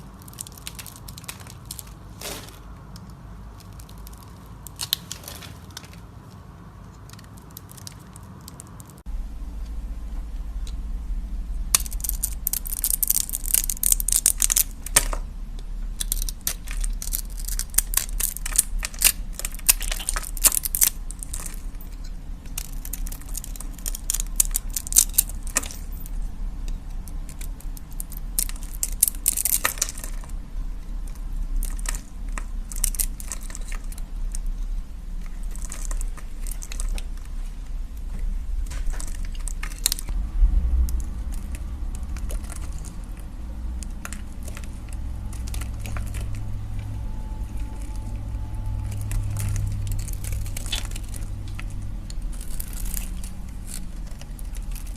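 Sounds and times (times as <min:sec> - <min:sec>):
low hum: 0:07.8 - 0:54.9.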